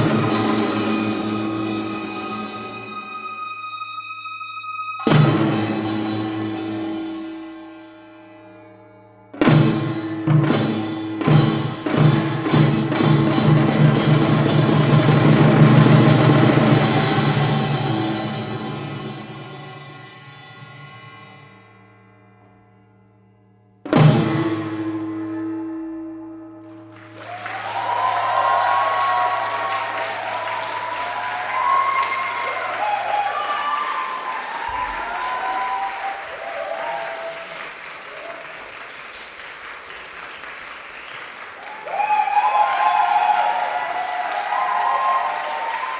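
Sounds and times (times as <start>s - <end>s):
percussion ensemble playing fast rhythm: 0.0s - 3.0s, 5.1s - 7.2s, 9.4s - 20.1s
audience applauding: 26.7s - 45.9s.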